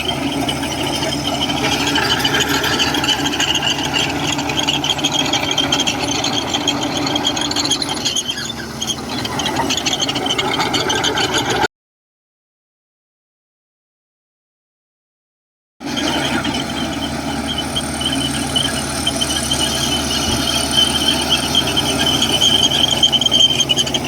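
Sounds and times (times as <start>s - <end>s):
bulldozer diesel engine: 0.0s - 11.7s, 15.8s - 24.0s
metallic squeal and rattle: 0.0s - 11.7s, 15.8s - 24.0s.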